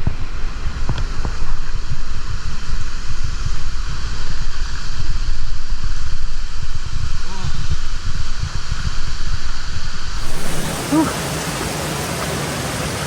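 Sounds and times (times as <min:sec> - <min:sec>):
wind buffeting microphone: 0:10.1 - 0:13.0
waterfall rushing: 0:10.2 - 0:13.0.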